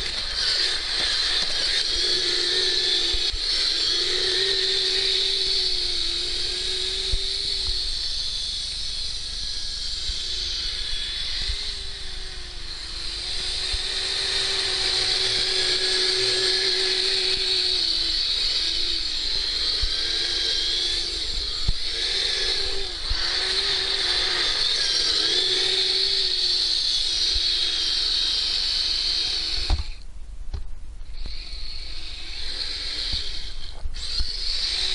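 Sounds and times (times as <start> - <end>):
electric motor whining: 0.0 - 30.1, 31.0 - 34.9
high-pitched whir: 0.0 - 30.1, 31.0 - 34.9.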